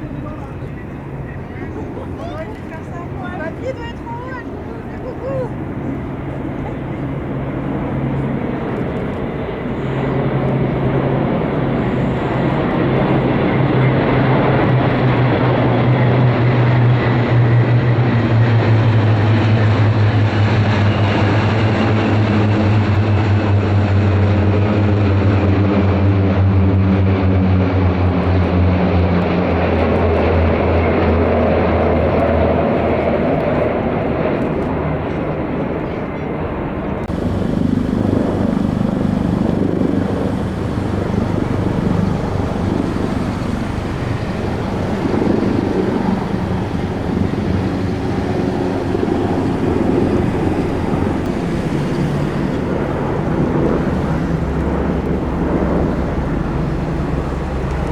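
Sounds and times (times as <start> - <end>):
propeller aircraft droning overhead: 0.0 - 57.9
rushing engine noise: 36.8 - 57.9.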